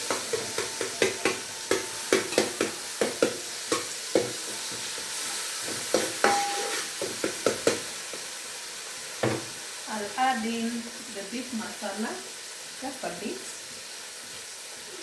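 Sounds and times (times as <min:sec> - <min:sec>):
spoon scraping pan: 0:00.0 - 0:07.7
vegetables sizzling in oil: 0:00.0 - 0:15.0.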